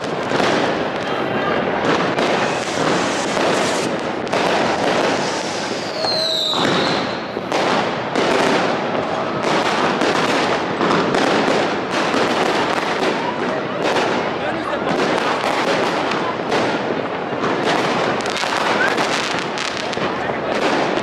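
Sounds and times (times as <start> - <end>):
fireworks bangs and crackles: 0.0 - 21.0
falling firework whistle: 2.0 - 7.5.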